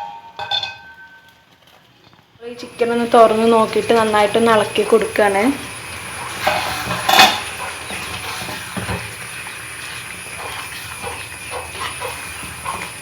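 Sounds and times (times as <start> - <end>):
spoon stirring in metal pot: 6.0 - 13.0
metal clank: 6.4 - 7.5.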